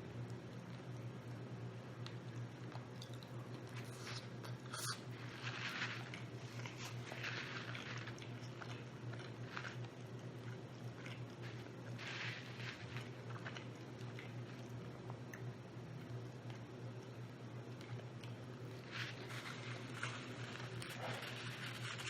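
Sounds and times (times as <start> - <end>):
chewing and biting food: 2.0 - 16.7
wet mouth noises: 2.8 - 5.2.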